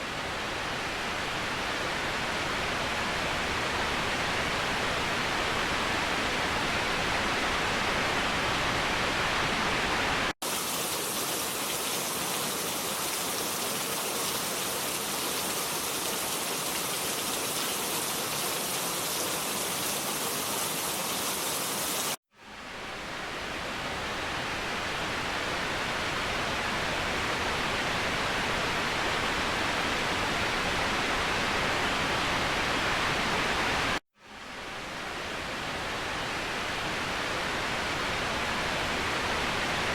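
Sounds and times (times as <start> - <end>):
waterfall rushing: 10.4 - 22.2.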